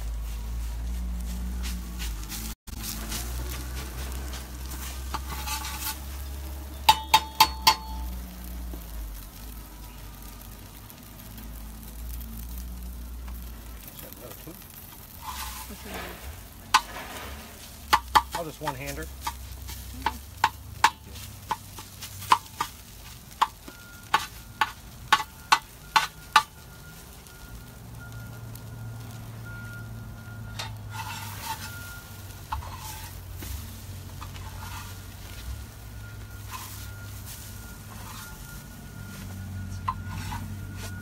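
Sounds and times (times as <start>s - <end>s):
food sizzling on a griddle: 0.0s - 41.0s
spatula scraping: 1.6s - 8.0s, 14.6s - 26.5s, 30.5s - 38.8s, 39.8s - 41.0s
metal spatula clacking: 6.9s - 8.0s.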